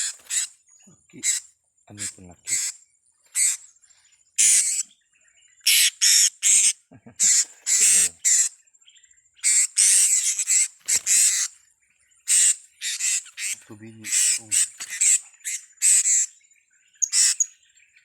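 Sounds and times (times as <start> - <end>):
parrots squawking: 0.0 - 0.5, 1.2 - 3.7, 4.4 - 4.8, 5.6 - 8.6, 9.4 - 11.6, 12.2 - 16.3, 17.0 - 17.5.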